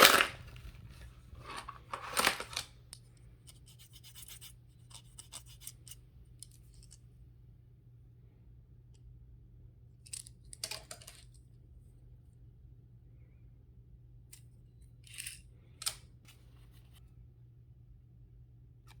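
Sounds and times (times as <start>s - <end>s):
packaging crinkling: 0.0s - 2.7s
low steady hum: 0.0s - 19.0s.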